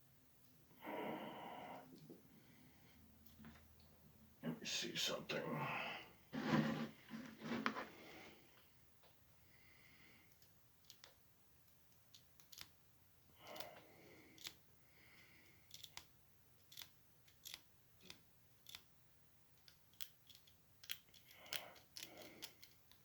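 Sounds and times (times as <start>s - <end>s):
faint clicks and scrapes: 6.4s - 9.2s, 19.6s - 23.0s.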